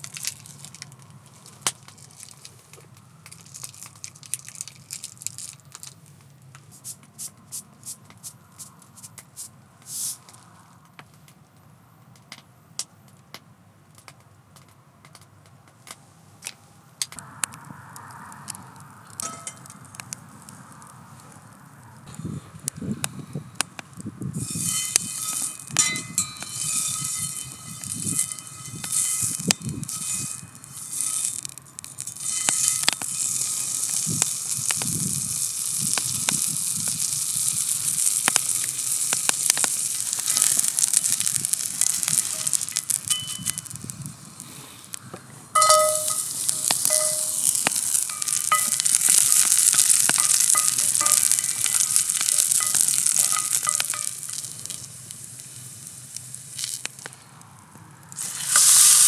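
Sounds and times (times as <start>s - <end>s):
steak sizzling in a frying pan: 0.0s - 6.1s, 18.0s - 59.0s
fat popping and crackling: 0.0s - 59.0s.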